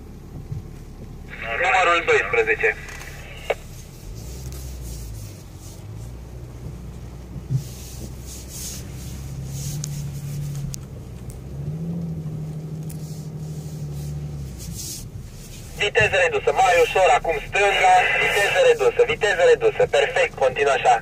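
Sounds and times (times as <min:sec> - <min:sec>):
car engine pulling under load: 0:02.7 - 0:18.6.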